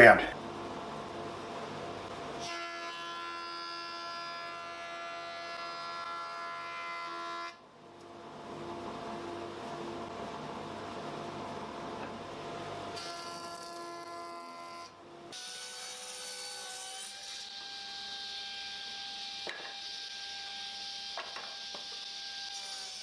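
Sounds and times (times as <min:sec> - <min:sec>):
power tool cutting wood: 0:13.0 - 0:23.0.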